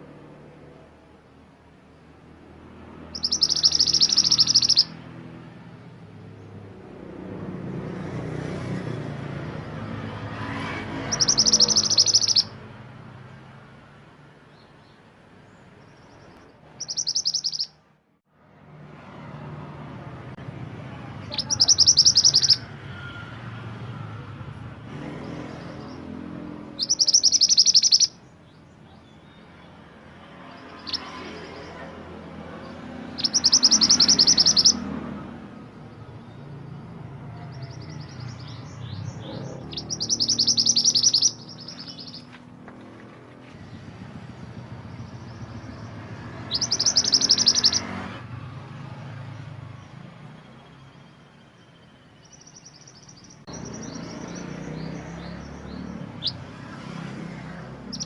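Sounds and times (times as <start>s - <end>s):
bird singing high trill: 3.0s - 5.0s, 11.0s - 12.6s, 15.8s - 17.8s, 21.2s - 22.8s, 25.4s - 29.5s, 30.5s - 31.8s, 32.6s - 34.9s, 37.4s - 42.3s, 44.8s - 47.9s, 50.5s - 56.6s.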